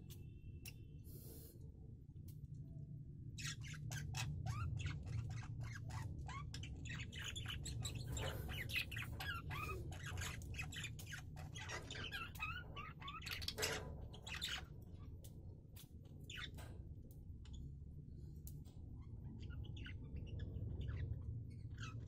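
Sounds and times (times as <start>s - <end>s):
cage birds chirping and squawking: 3.3s - 17.8s, 18.4s - 22.0s.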